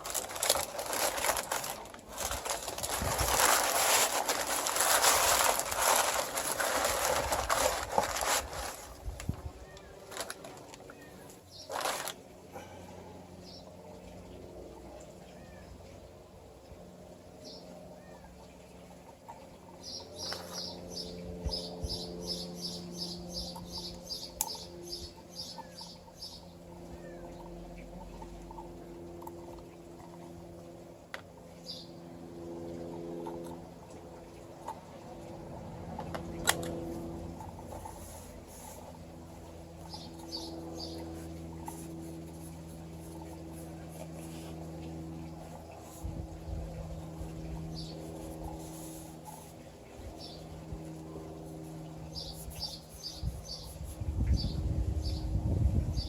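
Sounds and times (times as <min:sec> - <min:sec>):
low rumbling noise: 0:00.0 - 0:10.7
electric pump humming: 0:00.0 - 0:56.0
small birds chirping: 0:17.4 - 0:28.7, 0:37.4 - 0:55.3.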